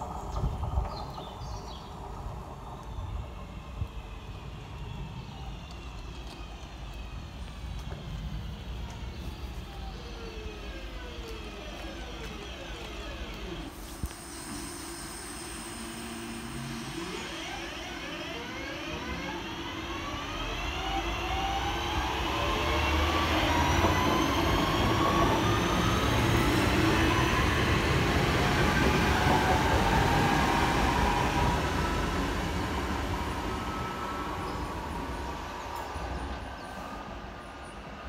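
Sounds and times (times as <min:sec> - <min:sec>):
train running on rails: 0:00.0 - 0:38.0
train motor whine: 0:02.1 - 0:36.5.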